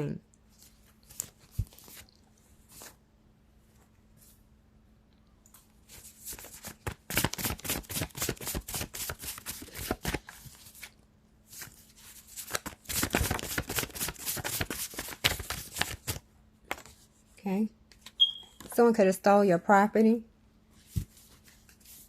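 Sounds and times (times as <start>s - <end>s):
cards being shuffled: 0.5s - 3.0s, 5.9s - 17.0s.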